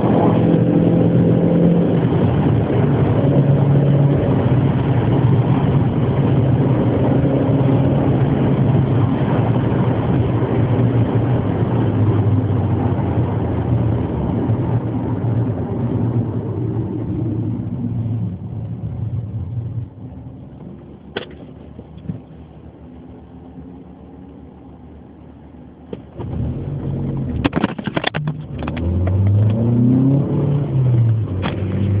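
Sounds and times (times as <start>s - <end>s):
race car engine revving: 26.2s - 32.0s.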